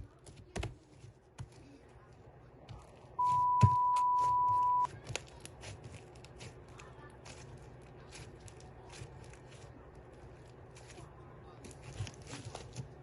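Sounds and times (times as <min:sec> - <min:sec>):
steady electronic beep: 0:03.2 - 0:04.9.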